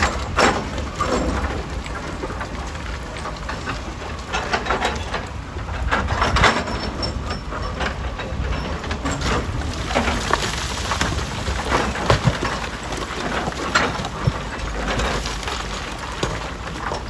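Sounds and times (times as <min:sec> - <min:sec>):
rock fragments clattering: 0:09.1 - 0:17.0.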